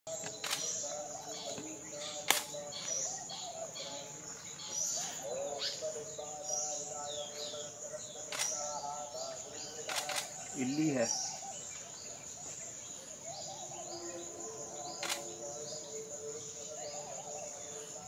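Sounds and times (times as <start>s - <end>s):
small birds chirping: 0.1s - 18.0s
sharp clicks: 0.2s - 0.8s, 2.3s - 2.6s, 8.3s - 8.6s, 9.9s - 10.4s, 15.0s - 15.2s.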